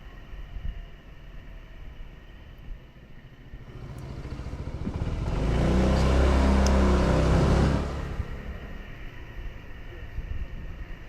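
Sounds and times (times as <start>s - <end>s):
road noise: 0.0s - 11.0s
motorcycle engine: 3.3s - 9.2s.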